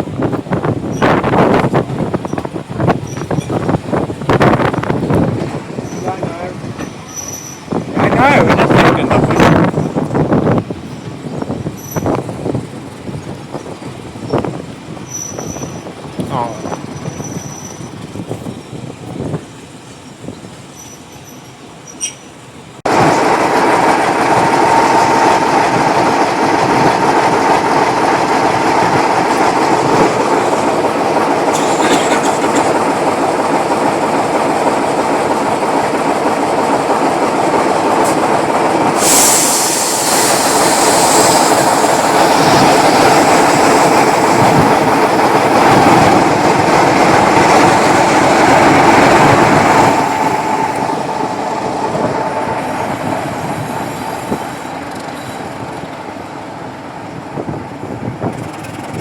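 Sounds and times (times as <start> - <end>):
train rail rumble: 0.0 - 59.0
high hiss or squeal: 39.0 - 41.6.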